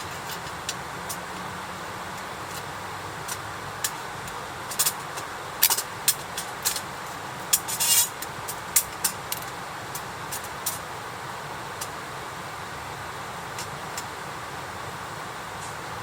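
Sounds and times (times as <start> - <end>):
campfire crackling and popping: 2.1 - 10.9.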